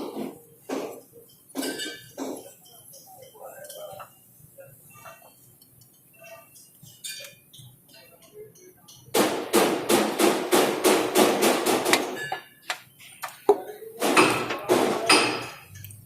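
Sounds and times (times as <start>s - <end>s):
hammer striking metal: 9.2s - 12.8s, 13.5s - 15.7s.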